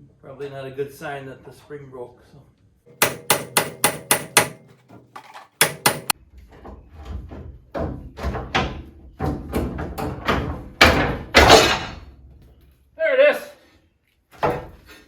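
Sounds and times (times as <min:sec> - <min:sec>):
metal-on-metal knocks: 0:02.9 - 0:06.2, 0:07.7 - 0:12.0.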